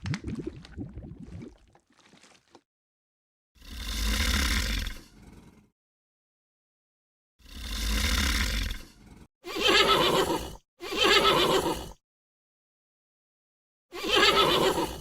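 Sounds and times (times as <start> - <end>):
animal calling: 9.5 - 11.7.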